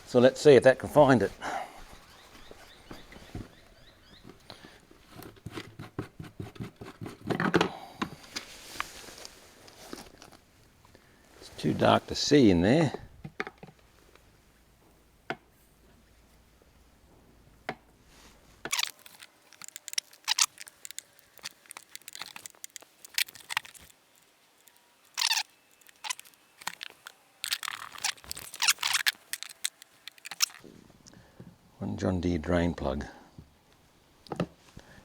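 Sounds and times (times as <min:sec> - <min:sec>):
magnet scraping and rattling in drum: 0:18.7 - 0:30.6.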